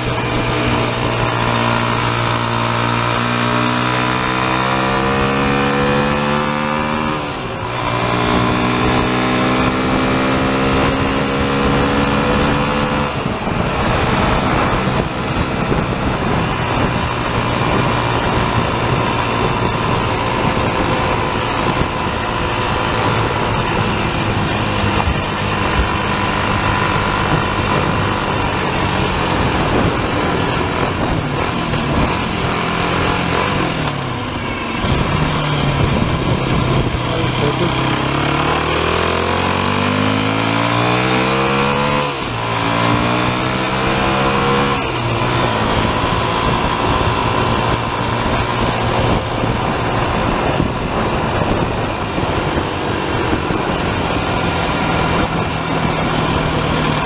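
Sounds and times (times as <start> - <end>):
motorcycle engine accelerating: 0.0 - 57.0
wind rush: 10.7 - 41.1, 41.9 - 57.0.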